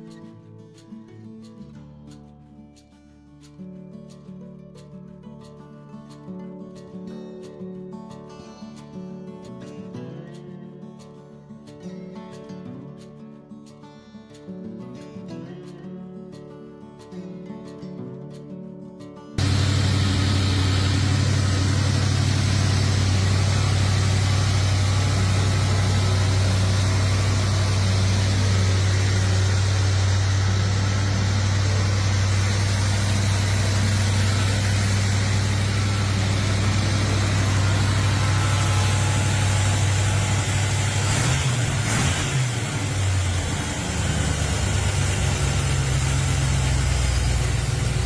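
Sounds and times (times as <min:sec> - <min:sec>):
car engine idling: 0:19.4 - 0:48.0.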